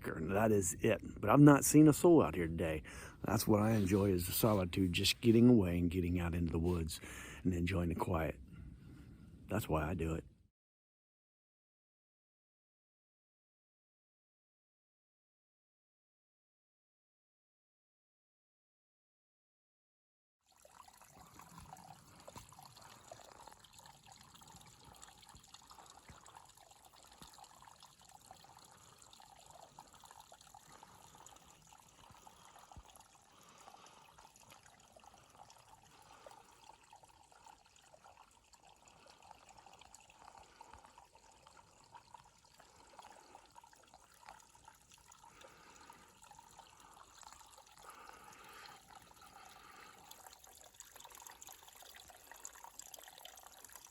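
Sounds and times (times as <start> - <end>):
water trickling: 0.0 - 8.4, 20.4 - 53.9
small water splashes: 20.4 - 53.9.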